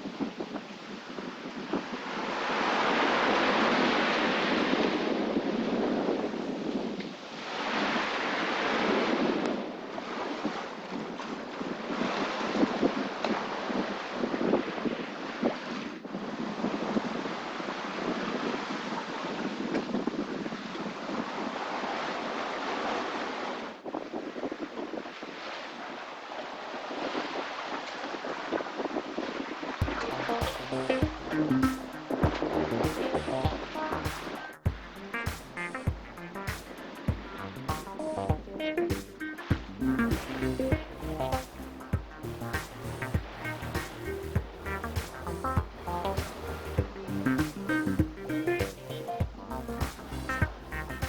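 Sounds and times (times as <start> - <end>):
wind buffeting microphone: 0.0 - 7.2
sea waves breaking: 0.0 - 51.0.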